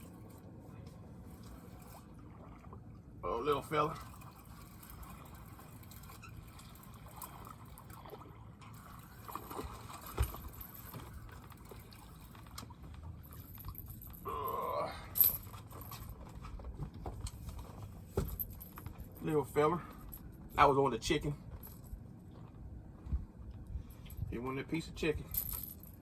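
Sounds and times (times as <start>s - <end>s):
water lapping against boat hull: 0.0s - 13.6s.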